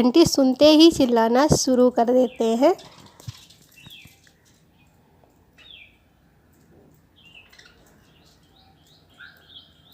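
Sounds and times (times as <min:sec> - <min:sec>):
budgerigars chirping: 0:07.2 - 0:09.9.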